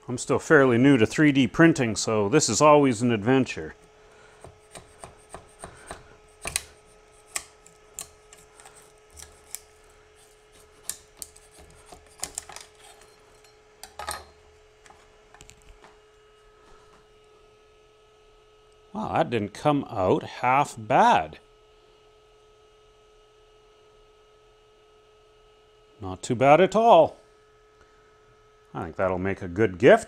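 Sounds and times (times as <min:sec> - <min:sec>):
faint steady hum: 0:00.0 - 0:30.0
metal scraper scraping print bed: 0:04.5 - 0:13.4.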